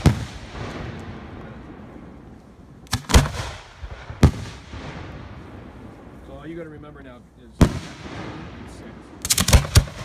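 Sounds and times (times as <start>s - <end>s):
fireworks bangs: 0.0s - 10.0s
fireworks rumble and crackle: 0.0s - 10.0s.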